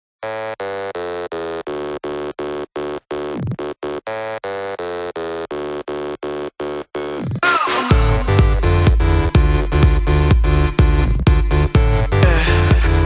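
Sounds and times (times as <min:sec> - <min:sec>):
pulsing buzzy synth tone: 0:00.2 - 0:12.2.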